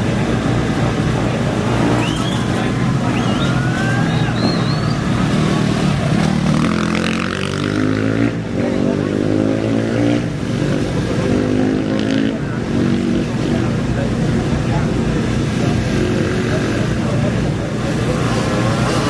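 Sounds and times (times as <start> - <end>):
motorcycle engines revving: 0.0 - 19.0
short high whistles: 1.9 - 5.2.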